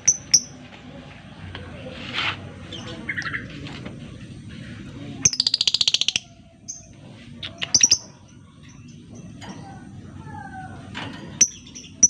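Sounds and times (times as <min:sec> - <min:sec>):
lovebird chattering trill: 0:05.2 - 0:08.2
sharp high bird chirps: 0:05.3 - 0:06.9.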